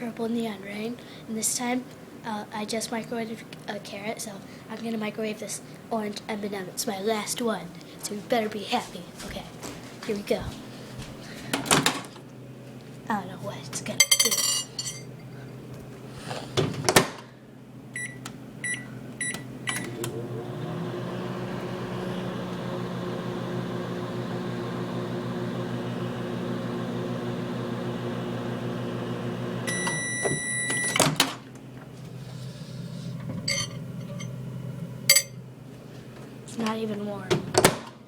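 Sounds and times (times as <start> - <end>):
microwave oven humming: 9.2 - 38.0
long end-of-cycle beep: 18.0 - 19.9, 29.7 - 31.0.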